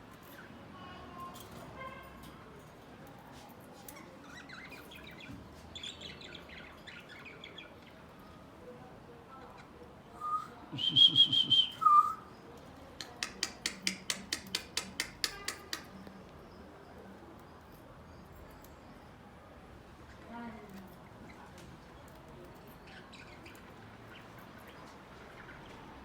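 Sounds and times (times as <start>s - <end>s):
sharp bird chips: 13.0s - 16.0s.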